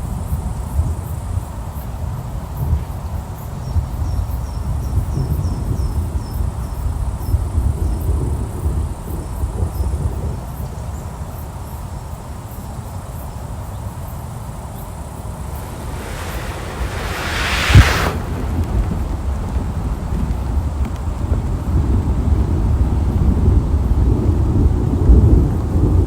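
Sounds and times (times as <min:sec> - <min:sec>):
rushing hiss: 0:15.0 - 0:20.2
distant thunder rumble: 0:15.1 - 0:21.8.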